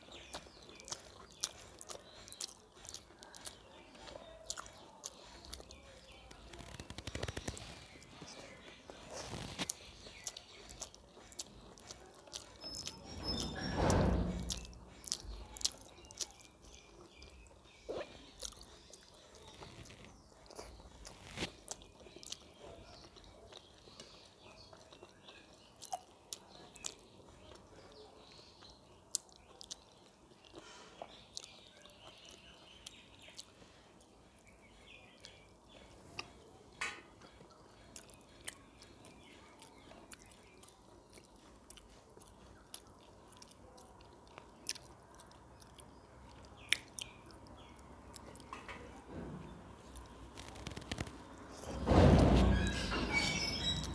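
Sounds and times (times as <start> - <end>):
person chewing food: 0.0 - 13.0, 14.5 - 36.5, 37.1 - 49.1
small crunches: 0.0 - 23.7, 35.2 - 53.9.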